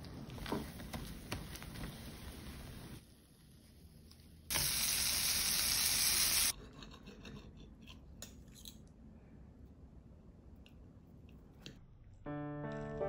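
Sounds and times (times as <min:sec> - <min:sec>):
food sizzling in a pan: 0:04.5 - 0:06.5.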